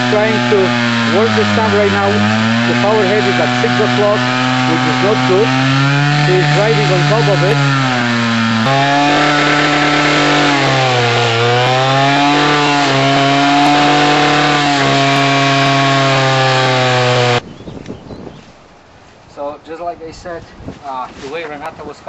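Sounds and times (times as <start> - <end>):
cutting head grinding stump: 0.0 - 17.4
stump grinder engine running hard: 0.0 - 17.4.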